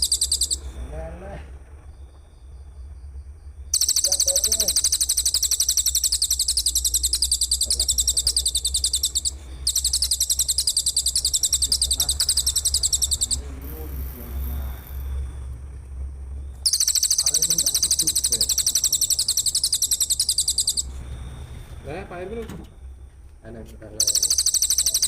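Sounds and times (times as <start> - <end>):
pulsed high-pitched trill: 0.0 - 0.8, 3.7 - 15.4, 16.6 - 21.4, 24.0 - 25.0
steady low hum: 0.0 - 25.0.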